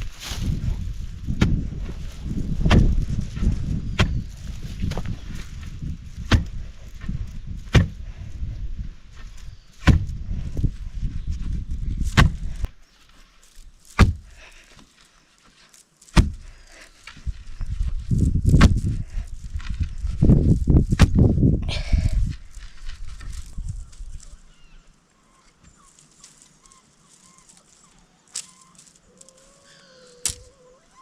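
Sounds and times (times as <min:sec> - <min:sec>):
sharp knocks: 0:14.0 - 0:14.3.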